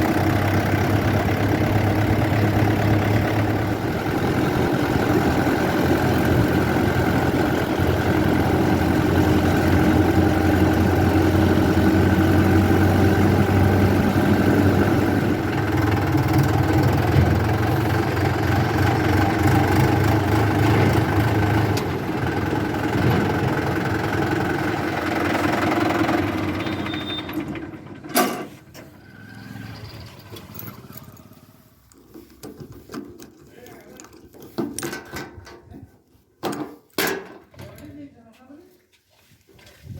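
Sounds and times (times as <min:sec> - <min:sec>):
heavy diesel engine running: 0:00.0 - 0:31.9.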